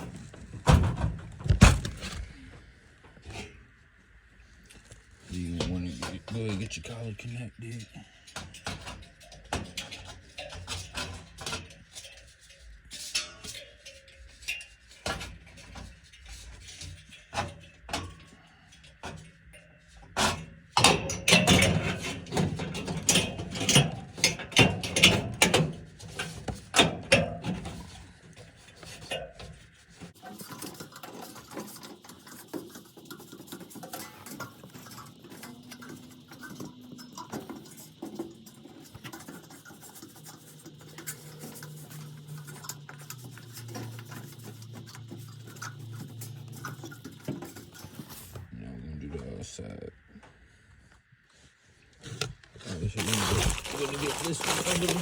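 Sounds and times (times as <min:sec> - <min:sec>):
metal scraping and rubbing: 0:27.5 - 0:48.5.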